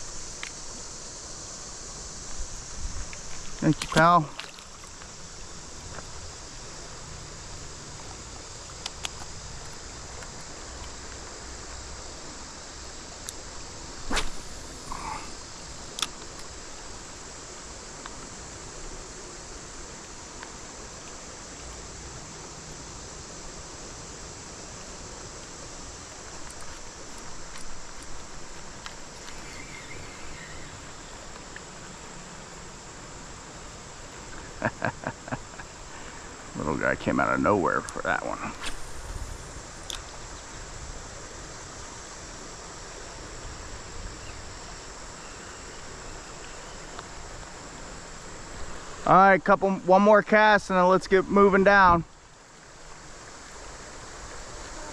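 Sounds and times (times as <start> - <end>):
creek water flowing: 0.0 - 54.9
crickets chirring: 0.0 - 54.9
faint click: 16.0 - 16.5, 38.6 - 40.1
faint clicks: 26.4 - 30.5.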